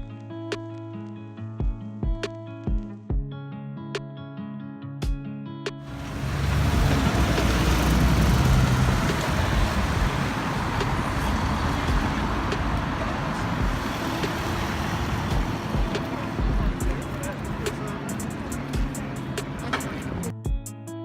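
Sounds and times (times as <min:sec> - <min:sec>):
guitar music: 0:00.0 - 0:21.0
moving vehicle rumble: 0:05.9 - 0:20.3.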